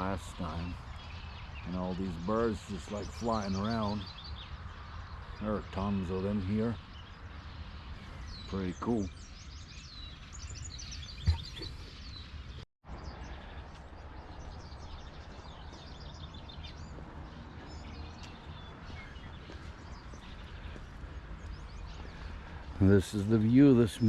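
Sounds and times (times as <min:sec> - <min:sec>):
swallows twittering: 0:00.0 - 0:24.0.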